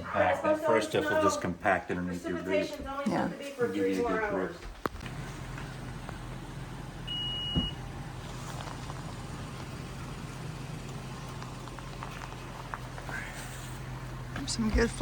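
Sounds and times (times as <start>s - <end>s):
car engine and road hum: 4.9s - 15.0s.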